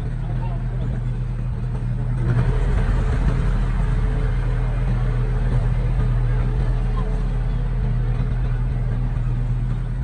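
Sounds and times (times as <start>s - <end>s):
diesel engine of heavy machinery: 0.0s - 10.0s.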